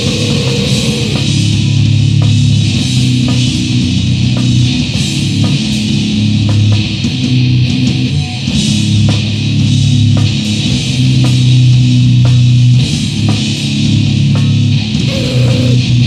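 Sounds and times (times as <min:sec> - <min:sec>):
drum hits: 0:00.0 - 0:07.5, 0:08.6 - 0:16.0
distorted guitar and bass: 0:00.0 - 0:16.0.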